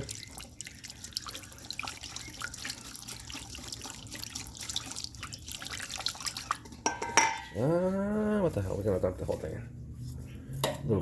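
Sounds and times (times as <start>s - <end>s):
liquid swishing and sloshing: 0.0s - 7.6s.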